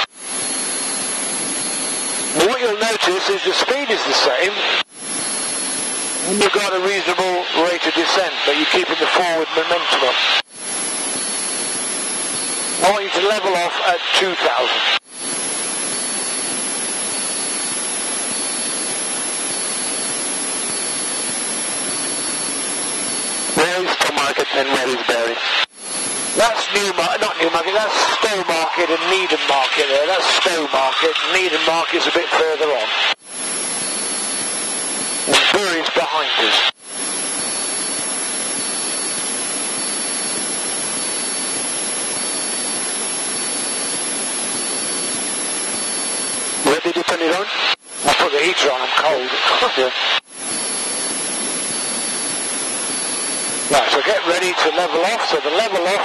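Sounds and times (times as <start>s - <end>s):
faint high whine: 0.0s - 56.0s.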